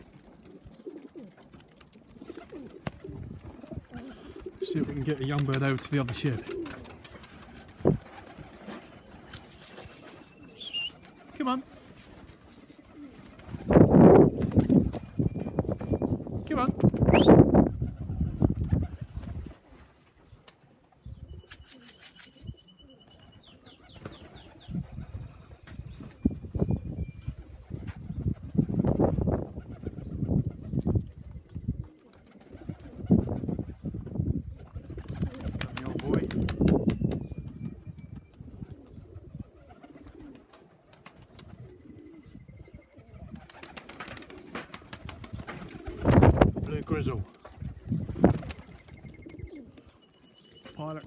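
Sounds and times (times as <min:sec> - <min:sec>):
wings flapping: 0:00.0 - 0:15.9, 0:16.8 - 0:19.6, 0:21.4 - 0:22.6, 0:23.8 - 0:26.3, 0:32.0 - 0:42.2, 0:43.1 - 0:49.8
pigeons cooing: 0:00.0 - 0:16.2, 0:17.1 - 0:50.0
small bird singing trill: 0:21.0 - 0:24.9, 0:48.8 - 0:51.0.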